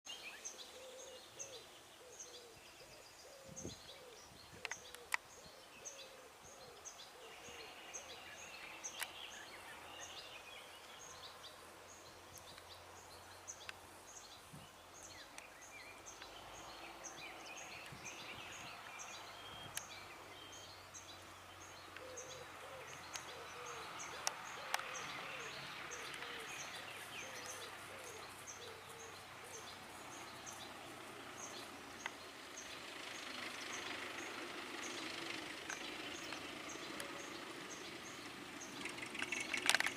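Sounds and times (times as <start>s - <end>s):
birds singing: 0.1s - 39.9s
sharp clicks: 24.1s - 25.0s, 38.7s - 39.9s.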